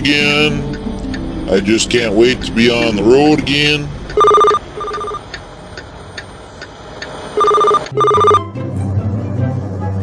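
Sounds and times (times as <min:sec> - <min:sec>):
telephone ringing: 0:04.2 - 0:05.2, 0:07.4 - 0:08.4.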